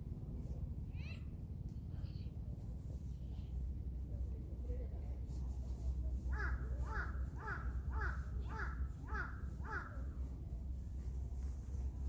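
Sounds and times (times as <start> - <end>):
crow cawing: 6.3 - 10.0.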